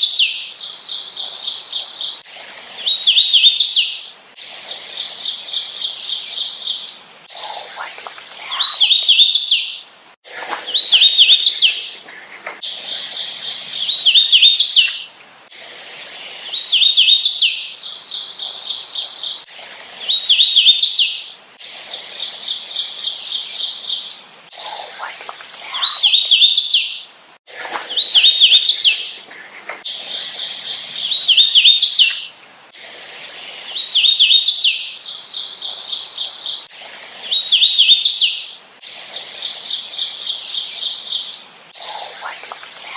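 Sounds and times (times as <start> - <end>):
warbler whistled song: 0.0 - 2.2, 2.8 - 4.1, 5.0 - 9.9, 10.6 - 12.0, 12.6 - 15.2, 16.0 - 27.1, 27.7 - 29.3, 29.9 - 32.4, 33.6 - 36.7, 37.3 - 38.6
rapid bird trill: 5.0 - 15.2, 15.9 - 32.4.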